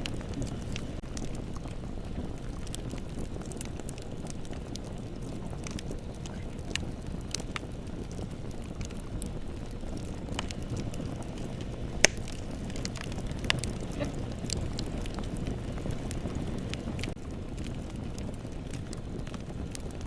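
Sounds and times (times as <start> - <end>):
bonfire crackling: 0.0 - 20.0.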